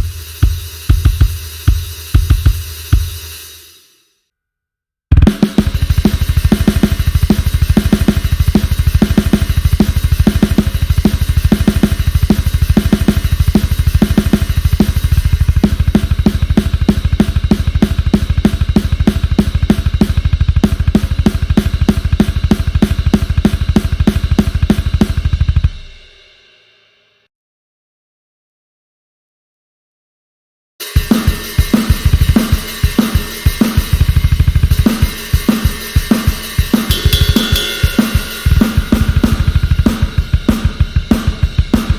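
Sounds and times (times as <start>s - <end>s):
snare hi-hat and cymbals: 0.0s - 4.0s, 5.1s - 27.0s, 30.8s - 41.9s
bass drum strokes: 33.6s - 41.9s.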